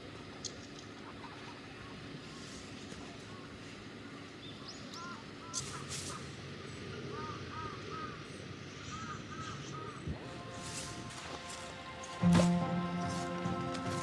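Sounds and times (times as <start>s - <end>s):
outdoor hiss: 1.7s - 14.0s
crows cawing: 4.9s - 5.9s, 7.0s - 14.0s.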